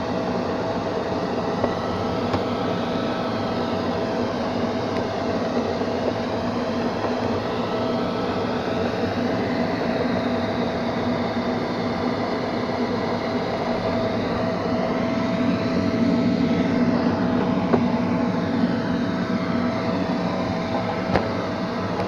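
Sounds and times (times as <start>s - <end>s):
robot vacuum motor hum: 0.0s - 22.0s.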